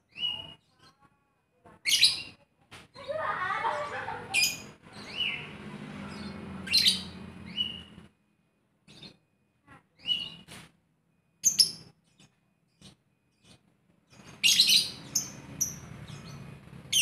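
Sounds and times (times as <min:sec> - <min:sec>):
lovebird chirping and squawking: 0:00.1 - 0:01.0, 0:01.8 - 0:02.4, 0:03.0 - 0:08.0, 0:10.0 - 0:10.5, 0:11.4 - 0:17.0.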